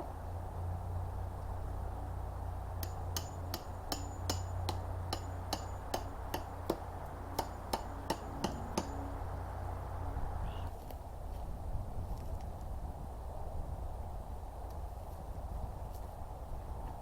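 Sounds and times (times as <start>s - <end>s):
hammer blows with metallic ring: 2.8s - 9.2s.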